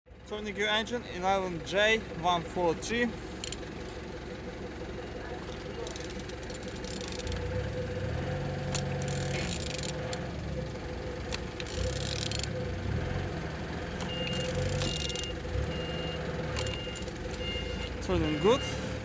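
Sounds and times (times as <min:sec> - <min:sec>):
vehicle engine humming: 0:00.1 - 0:19.0
reversing alarm beeping: 0:14.0 - 0:19.0
sharp clicks: 0:16.5 - 0:17.5.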